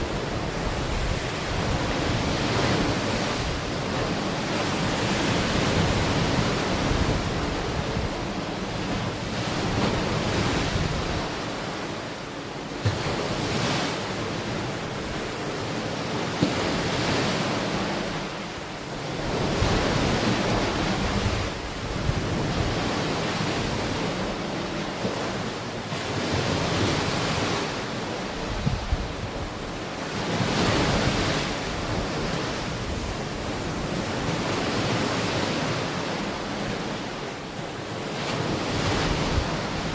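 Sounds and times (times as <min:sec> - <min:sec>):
wind rumbling on microphone: 0:00.0 - 0:11.4, 0:19.2 - 0:24.2, 0:28.3 - 0:29.8, 0:38.4 - 0:39.9
ocean waves breaking: 0:00.0 - 0:39.9.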